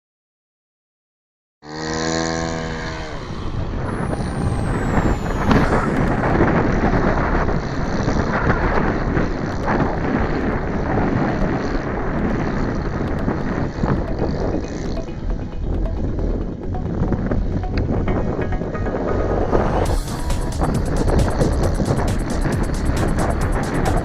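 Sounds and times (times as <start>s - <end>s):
model airplane engine buzzing: 1.7s - 15.0s
wind noise on microphone: 2.2s - 24.0s.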